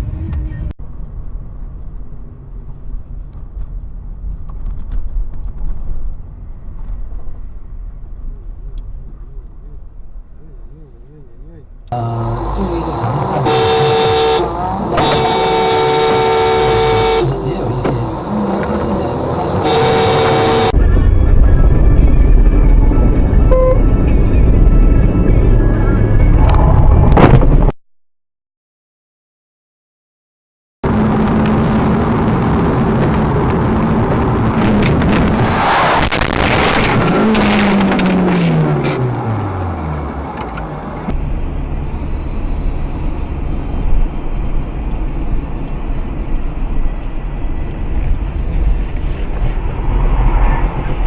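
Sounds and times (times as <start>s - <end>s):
traffic rumble: 0.0s - 27.7s, 30.8s - 51.0s
car engine and road noise: 0.0s - 27.8s, 30.8s - 51.0s
car horn blaring: 12.0s - 20.9s, 23.5s - 24.0s.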